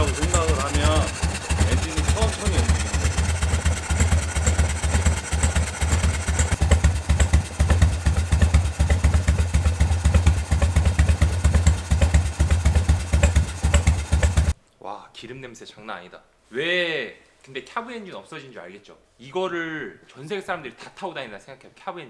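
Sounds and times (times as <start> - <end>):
motorcycle engine idling slowly: 0.0 - 14.6.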